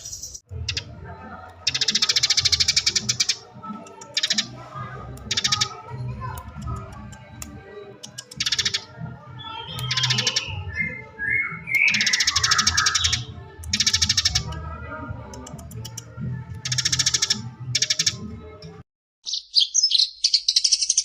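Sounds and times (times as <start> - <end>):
sparrow chattering: 0.0 - 14.6, 15.4 - 18.2, 19.2 - 21.0
low background music: 0.0 - 18.8.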